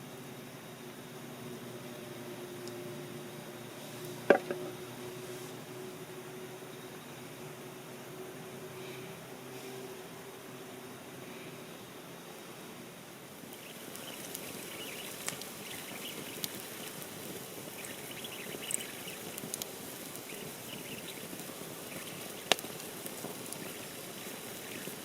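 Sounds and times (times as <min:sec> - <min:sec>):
campfire crackling and hissing: 0:00.0 - 0:25.0
sharp fire crack: 0:13.4 - 0:25.0.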